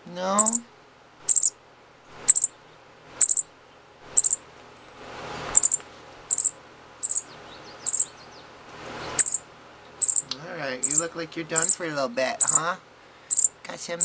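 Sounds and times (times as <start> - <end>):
baby sparrow chirping: 0.4 - 0.7, 1.3 - 1.6, 2.2 - 2.6, 3.2 - 3.5, 4.1 - 4.4, 5.5 - 12.7, 13.3 - 14.0.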